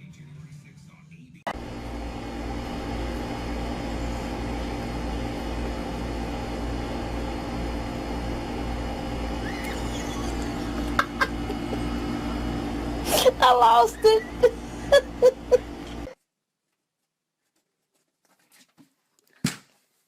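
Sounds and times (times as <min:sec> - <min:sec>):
motor drone with steady hum: 0:01.5 - 0:16.2.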